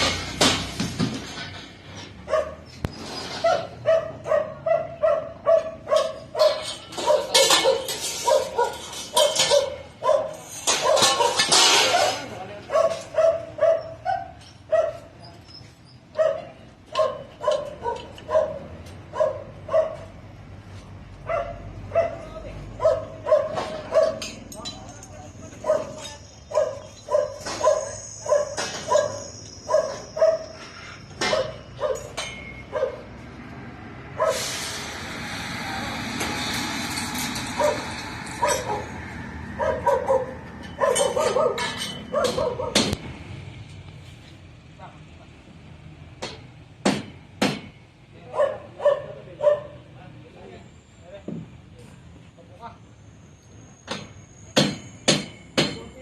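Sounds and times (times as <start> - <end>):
dog barking: 2.3 - 2.6, 3.4 - 11.5, 12.7 - 15.1, 16.2 - 20.1, 21.2 - 24.2, 25.6 - 30.6, 31.2 - 33.1, 34.2 - 34.4, 37.6 - 38.9, 39.6 - 42.9, 48.3 - 49.9.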